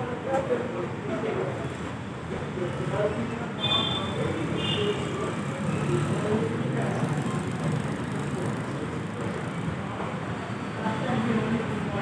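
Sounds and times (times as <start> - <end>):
faint voices: 0.0 - 12.0.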